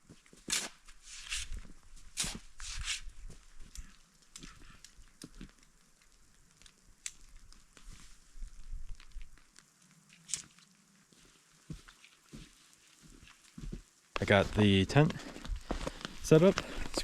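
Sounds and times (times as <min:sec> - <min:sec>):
footsteps crunching in snow: 0:00.0 - 0:03.7, 0:11.1 - 0:17.0.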